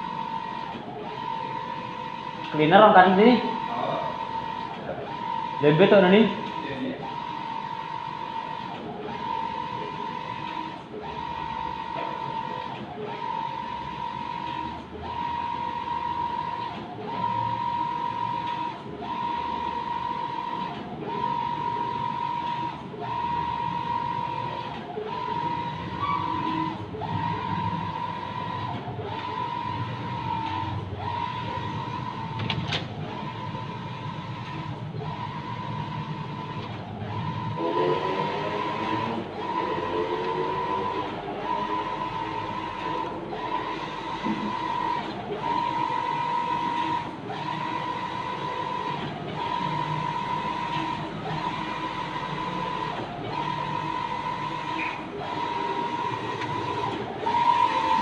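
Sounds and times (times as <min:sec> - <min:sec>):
printer carriage whine: 0:00.0 - 0:58.0.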